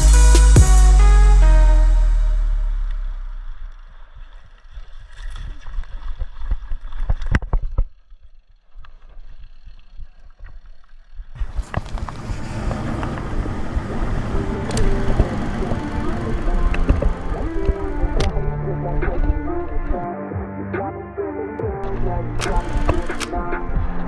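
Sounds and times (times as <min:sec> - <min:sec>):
bike tyre rumble: 0:03.1 - 0:20.0.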